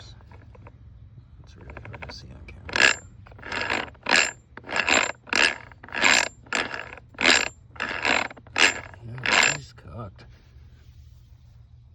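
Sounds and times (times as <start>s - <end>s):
steel gears clacking: 1.7s - 2.1s, 2.7s - 9.6s.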